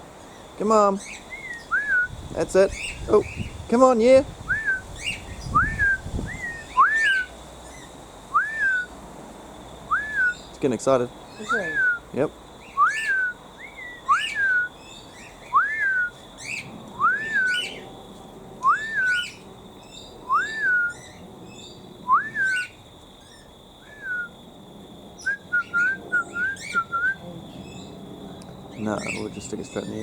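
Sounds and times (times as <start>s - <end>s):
high chirping calls: 0.2s - 8.9s, 9.9s - 17.9s, 18.6s - 24.3s, 25.2s - 30.0s
cockatiel whistle: 1.4s - 2.2s, 4.5s - 7.3s, 8.3s - 8.9s, 9.9s - 10.5s, 11.4s - 12.1s, 12.7s - 14.7s, 15.4s - 17.8s, 18.6s - 19.4s, 20.2s - 21.2s, 22.1s - 22.8s, 23.8s - 24.3s, 25.2s - 27.2s.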